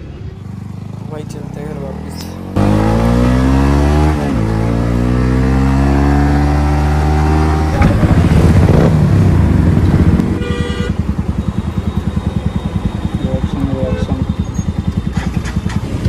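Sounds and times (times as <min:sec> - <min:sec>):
motorcycle engine revving: 0:00.2 - 0:16.0
vehicle horn toot: 0:10.3 - 0:15.7.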